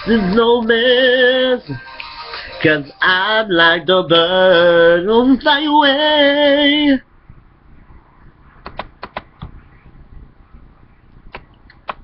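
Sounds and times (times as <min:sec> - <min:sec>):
short sharp clicks: 0:08.6 - 0:09.5.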